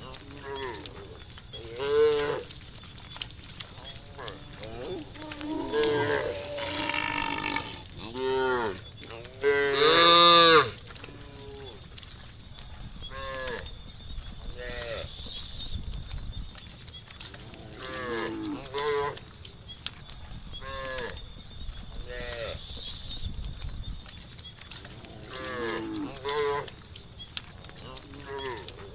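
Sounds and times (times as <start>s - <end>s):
cows mooing: 0.2s - 2.5s, 3.8s - 11.8s, 25.0s - 26.7s, 27.9s - 28.8s.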